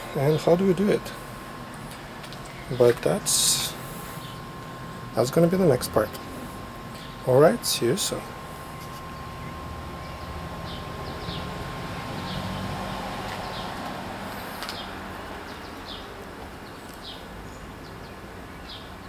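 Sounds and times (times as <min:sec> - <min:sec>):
steady low rumble: 0:00.0 - 0:16.7
bird chirping: 0:08.0 - 0:12.7.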